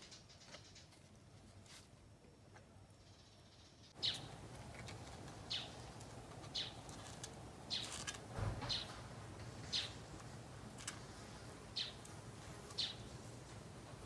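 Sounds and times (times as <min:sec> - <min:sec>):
steady background hiss: 0:00.9 - 0:14.0
high bird chirps: 0:03.1 - 0:04.3, 0:09.7 - 0:10.0.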